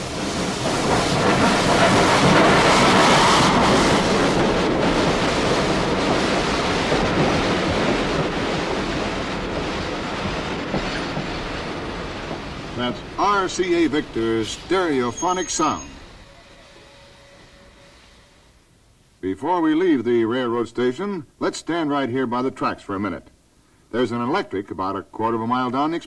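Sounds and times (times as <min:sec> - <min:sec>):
train passing at speed: 0:00.0 - 0:18.7.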